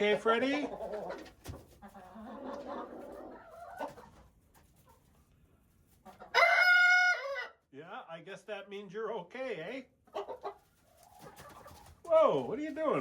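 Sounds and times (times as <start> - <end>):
chickens clucking softly: 0.0 - 7.7, 9.8 - 13.0
rooster crowing: 6.4 - 7.5.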